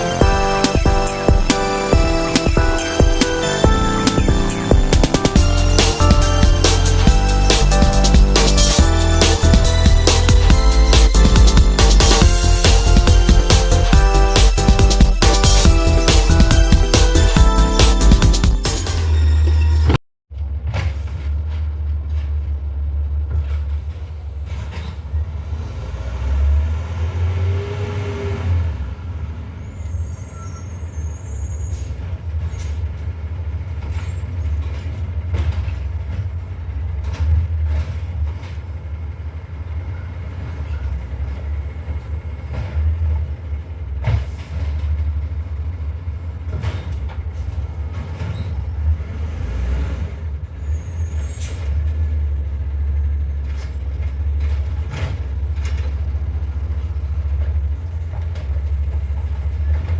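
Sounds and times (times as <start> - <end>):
knocks and clanks: 0.0 - 25.3, 33.7 - 38.9, 46.4 - 49.1, 53.4 - 59.9
diesel engine rumbling: 0.0 - 59.9.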